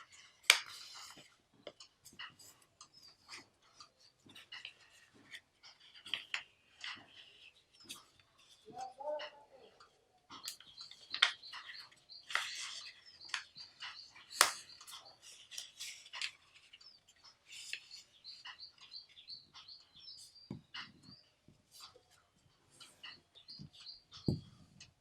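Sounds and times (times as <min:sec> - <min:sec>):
paper being folded: 0:14.2 - 0:18.2.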